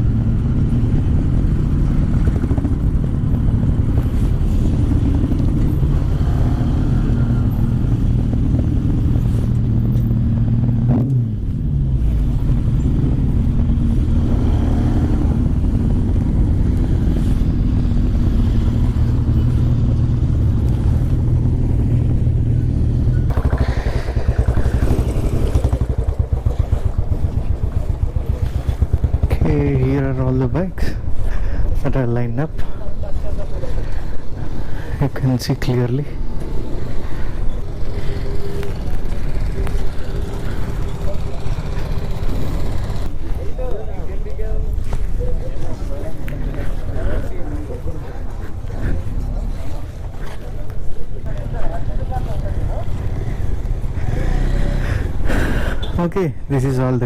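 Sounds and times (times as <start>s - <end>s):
motorcycle engine running: 0.0s - 31.2s, 36.2s - 43.4s.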